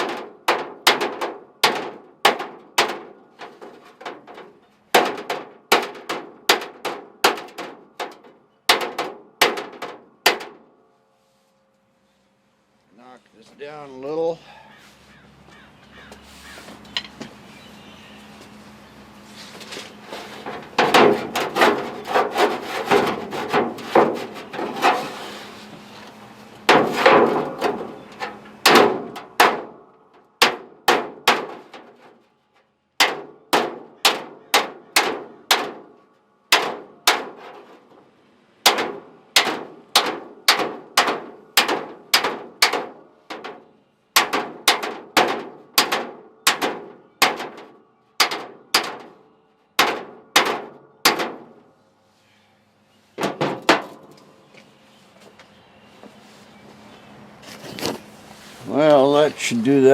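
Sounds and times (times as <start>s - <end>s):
hammer striking sheet metal: 0.0s - 10.6s, 26.7s - 29.8s, 30.4s - 32.0s, 33.0s - 35.9s, 36.5s - 37.5s, 38.6s - 43.6s, 44.2s - 49.1s, 49.8s - 51.5s.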